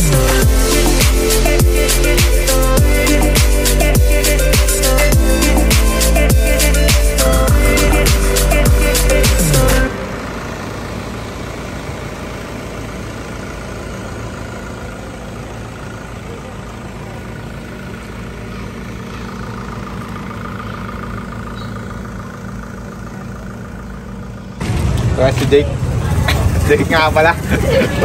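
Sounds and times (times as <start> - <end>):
background music: 0.0 - 10.3
vehicle engine idling: 0.0 - 28.0.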